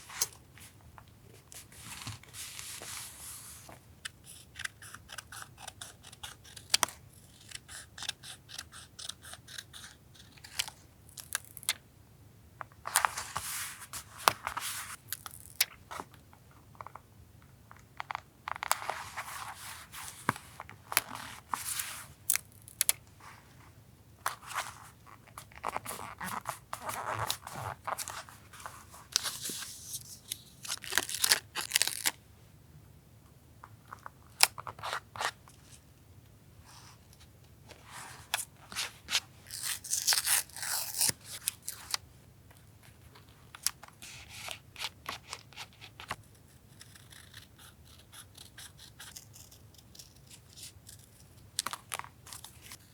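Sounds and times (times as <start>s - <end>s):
scissors snipping paper: 4.3s - 10.6s, 46.5s - 52.8s.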